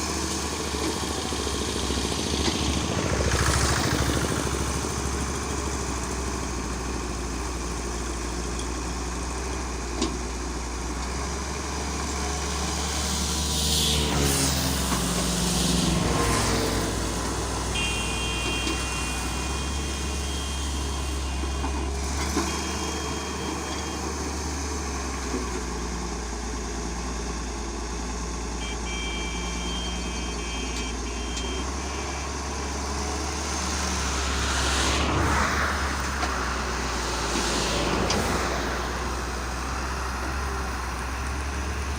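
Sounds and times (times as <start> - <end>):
heavy vehicle engine humming: 0.0 - 41.9
high electronic beeping tone: 16.5 - 21.8, 28.6 - 32.4
brief swells of noise: 33.7 - 39.8.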